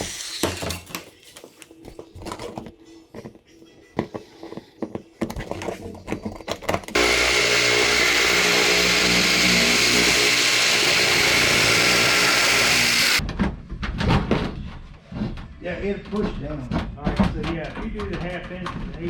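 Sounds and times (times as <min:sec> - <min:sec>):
power tool motor running: 0:07.0 - 0:13.2.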